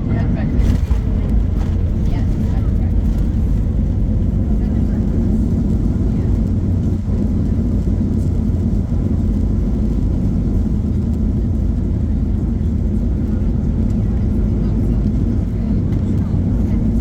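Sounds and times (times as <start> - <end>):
jet airliner low rumble: 0.0 - 17.0.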